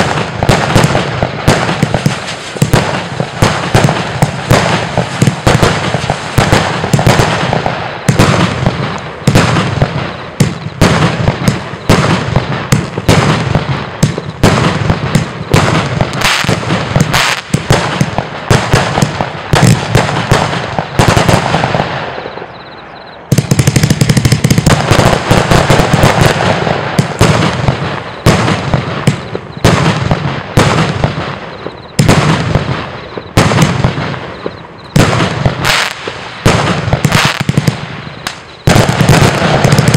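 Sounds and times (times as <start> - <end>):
fireworks firing rapid volleys: 0.0 - 39.9
fireworks hiss: 1.5 - 9.5.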